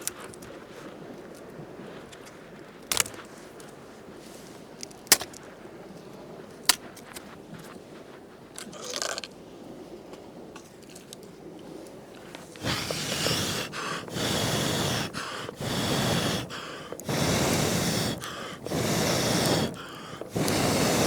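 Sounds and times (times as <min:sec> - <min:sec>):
person blowing out hard: 0:12.6 - 0:21.0.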